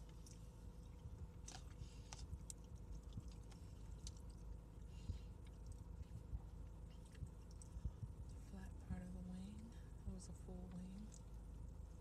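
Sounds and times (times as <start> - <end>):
person chewing food: 0.0 - 8.5.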